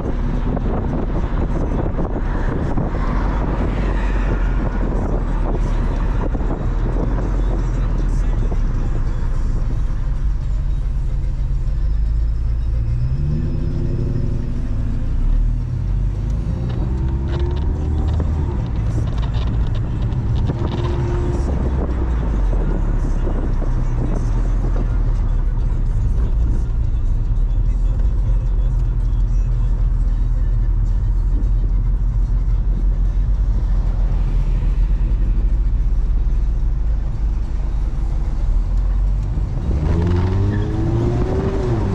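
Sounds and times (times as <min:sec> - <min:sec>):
car engine revving: 0:00.0 - 0:41.9
low road rumble: 0:00.0 - 0:41.9.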